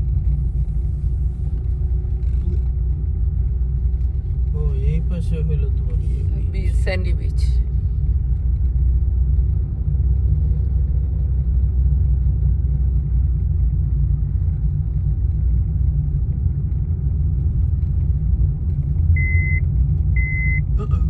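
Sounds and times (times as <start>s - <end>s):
car engine and road noise: 0.0s - 21.0s
short high beeps: 19.2s - 19.6s, 20.2s - 20.7s.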